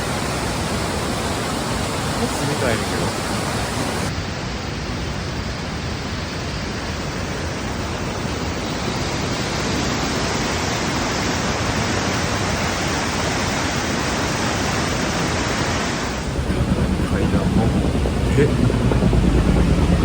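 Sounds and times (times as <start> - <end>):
waterfall rushing: 0.0 - 4.1.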